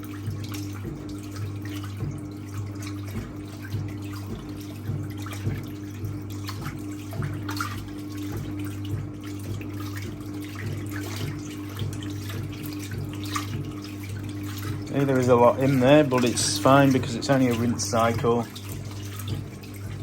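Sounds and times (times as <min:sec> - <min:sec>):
washing machine motor hum: 0:00.0 - 0:20.0
water swishing in washing machine: 0:00.0 - 0:20.0.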